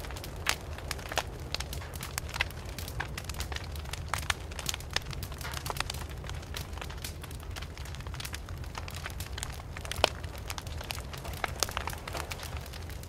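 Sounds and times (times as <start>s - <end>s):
fire popping: 0.0s - 13.0s
wood fire crackling: 0.0s - 13.0s.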